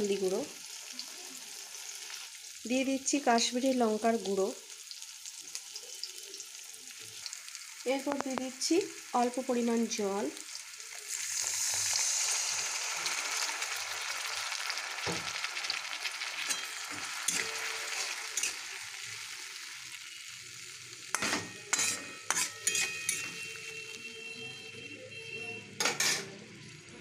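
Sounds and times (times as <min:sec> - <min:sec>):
masala sizzling in oil: 0:00.0 - 0:27.0
metal spatula scraping a pan: 0:16.4 - 0:18.9, 0:21.1 - 0:24.0, 0:25.8 - 0:26.4.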